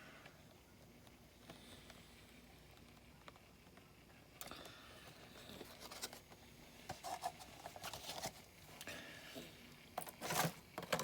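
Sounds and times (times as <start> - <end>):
toy and packaging handling noises: 4.4 - 11.0.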